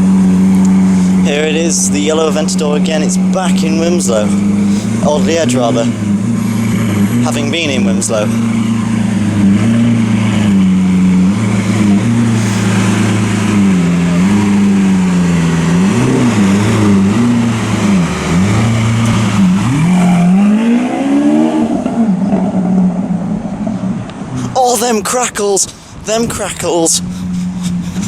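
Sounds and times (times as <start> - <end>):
sports car engine revving: 0.0 - 24.6.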